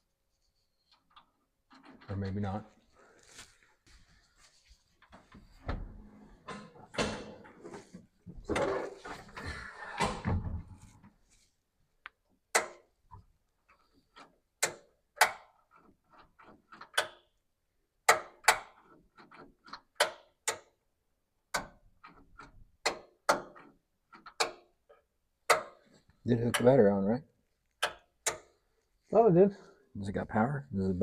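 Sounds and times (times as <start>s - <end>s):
rustling and scraping: 0.3s - 11.6s.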